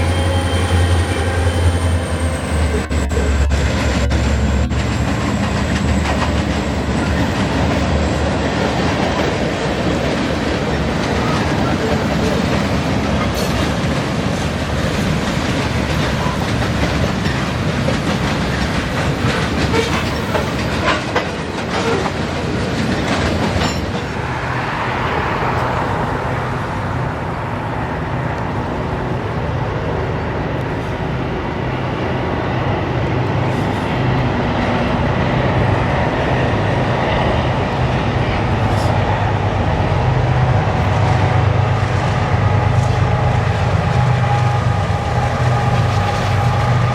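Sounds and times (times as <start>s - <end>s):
train low rumble: 0.0s - 46.9s
train wheels clicking over rail joints: 2.6s - 24.3s.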